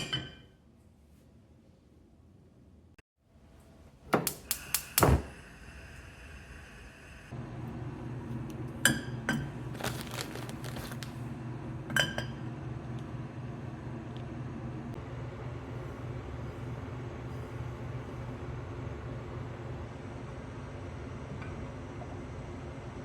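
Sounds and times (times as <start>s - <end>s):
clinks of glass or dishware: 0.0s - 0.5s.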